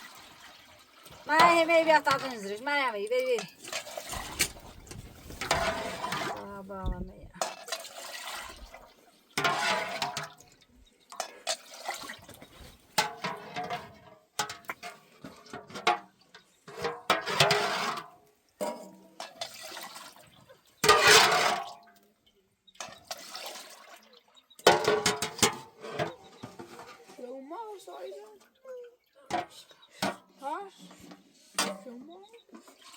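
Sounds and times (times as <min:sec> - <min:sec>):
water splashing: 0:00.0 - 0:10.6.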